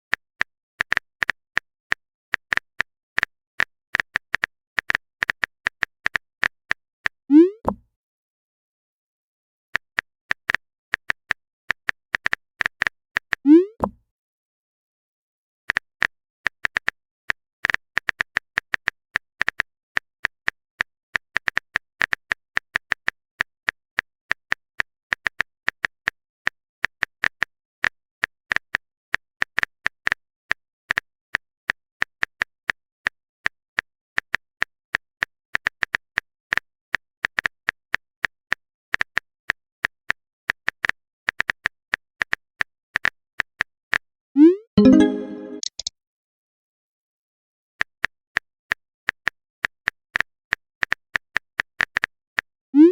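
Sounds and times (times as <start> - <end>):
keyboard keystroke clicks: 44.8 - 45.9.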